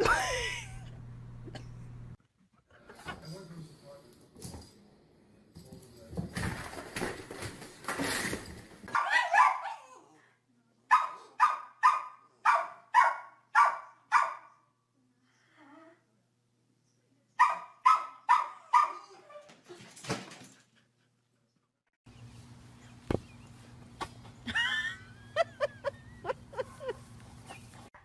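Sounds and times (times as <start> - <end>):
electrical hum: 0.0 - 2.2
dog barking: 8.9 - 10.0, 10.9 - 14.6, 17.4 - 19.1.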